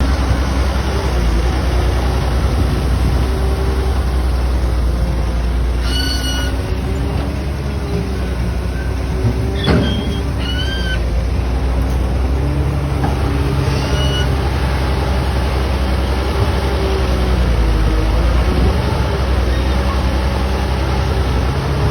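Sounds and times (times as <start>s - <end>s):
diesel engine rumbling: 0.0s - 21.9s
high-pitched squeaks: 5.8s - 6.6s, 9.6s - 11.0s, 13.6s - 14.3s.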